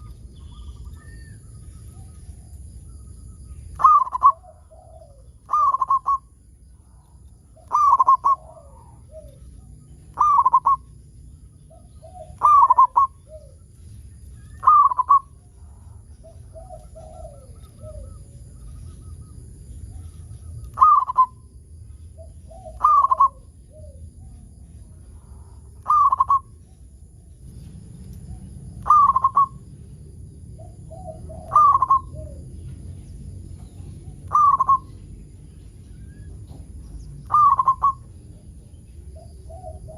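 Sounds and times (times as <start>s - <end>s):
dove cooing: 3.7s - 10.9s, 11.7s - 13.7s, 14.4s - 21.4s, 22.2s - 24.4s, 25.2s - 26.6s, 28.3s - 29.7s, 30.5s - 32.7s, 33.6s - 35.0s, 36.0s - 39.9s.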